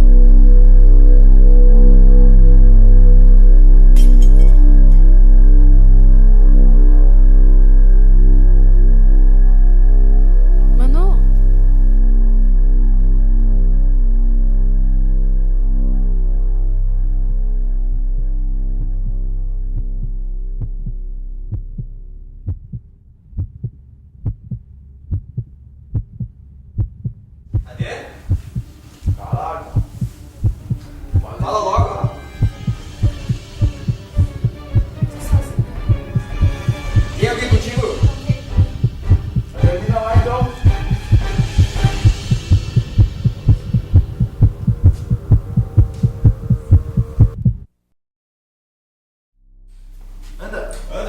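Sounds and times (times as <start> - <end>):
low sustained drone: 0.0 - 21.4, 28.8 - 47.3
heartbeat double thump: 20.6 - 22.8, 23.4 - 47.7.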